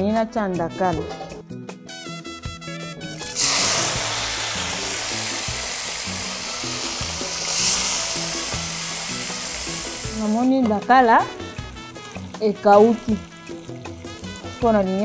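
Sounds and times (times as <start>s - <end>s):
fish frying in hot oil: 3.1s - 10.6s, 11.6s - 15.0s.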